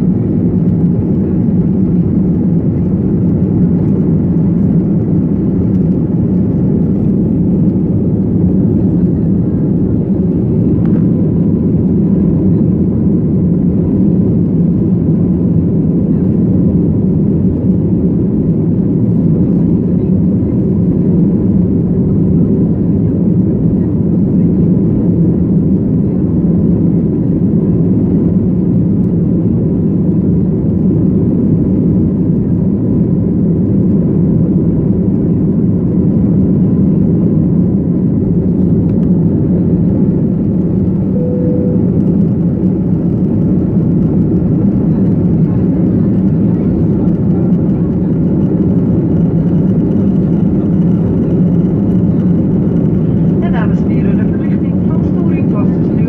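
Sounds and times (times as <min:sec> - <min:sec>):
airliner cabin engine roar: 0:00.0 - 0:56.0
soft cabin tone: 0:41.0 - 0:42.8.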